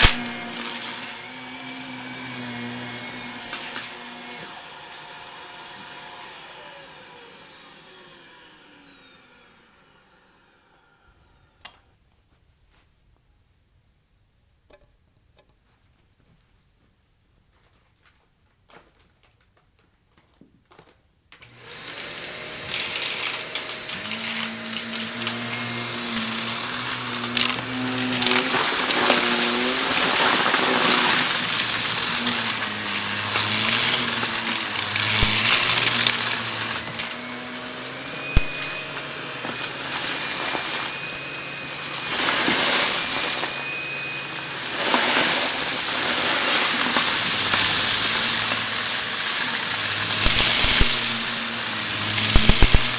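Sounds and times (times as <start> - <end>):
vacuum sucking up crunchy debris: 0.0 - 10.2, 21.5 - 52.9
vacuum cleaner motor: 0.0 - 11.6, 21.4 - 52.9.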